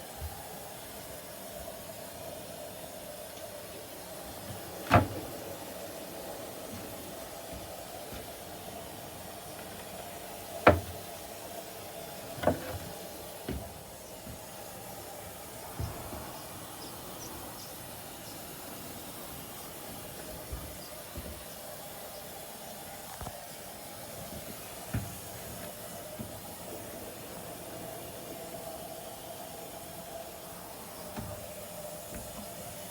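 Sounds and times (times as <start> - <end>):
washing machine humming: 0.0 - 32.9
washing machine knocks: 4.5 - 5.7, 9.6 - 11.3, 12.3 - 14.5, 31.1 - 32.7.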